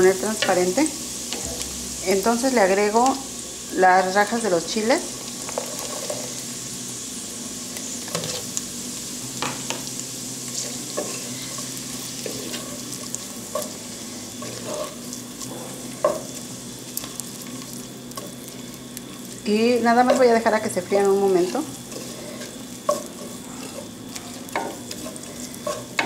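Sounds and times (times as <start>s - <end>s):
vegetables sizzling in fat: 0.0s - 26.0s
wooden spatula scraping clay pot: 21.4s - 26.0s.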